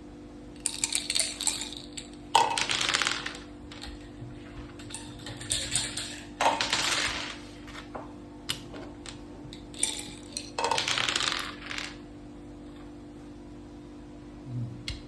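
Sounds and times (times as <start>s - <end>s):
dice rattling on board: 0.6s - 4.1s, 4.7s - 7.9s, 8.5s - 12.0s
game pieces clicking down: 0.6s - 4.1s, 4.8s - 7.9s, 8.5s - 12.0s.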